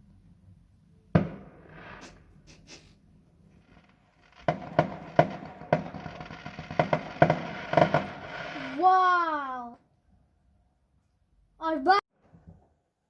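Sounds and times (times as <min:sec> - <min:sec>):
firework bangs and crackles: 0:01.1 - 0:02.4, 0:03.5 - 0:08.9.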